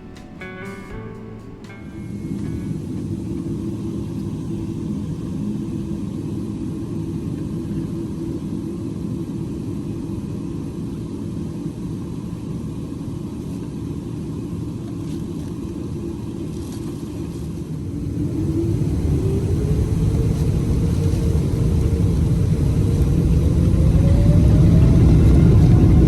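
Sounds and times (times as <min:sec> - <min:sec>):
jet engine cabin rumble: 0:01.1 - 0:26.0.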